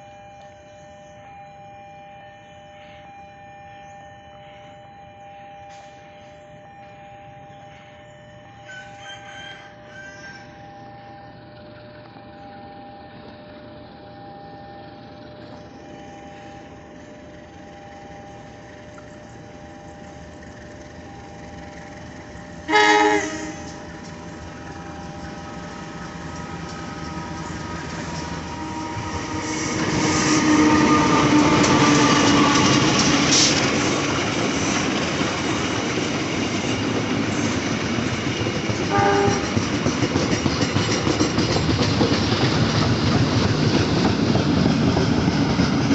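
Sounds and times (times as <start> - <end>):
train passing: 5.6 - 45.9
wheels clacking over rail joints: 21.5 - 45.9
train horn blast: 22.6 - 33.6, 38.9 - 39.6.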